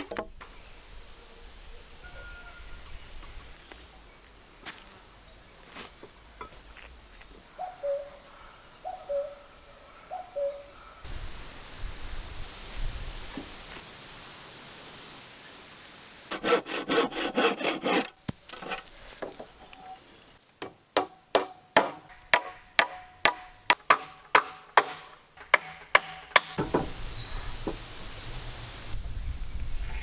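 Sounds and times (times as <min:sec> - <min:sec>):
hand saw strokes on wood: 0:16.3 - 0:19.2
sharp ringing knocks on wood: 0:20.6 - 0:27.0.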